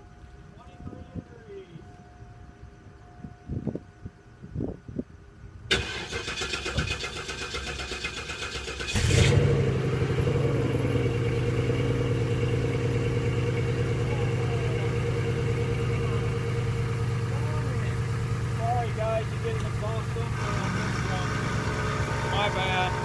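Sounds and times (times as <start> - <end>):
car engine revving and idling: 8.9 - 23.0.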